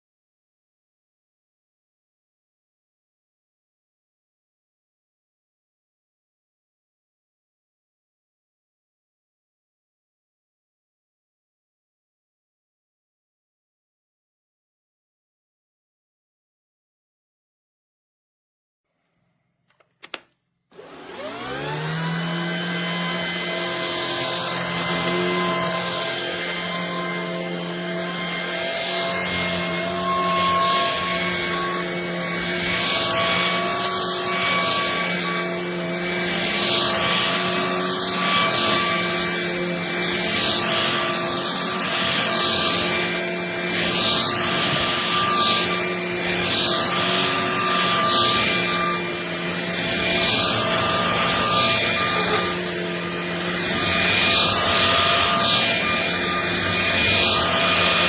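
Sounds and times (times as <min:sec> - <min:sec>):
vacuum cleaner running: 0:20.1 - 0:58.0.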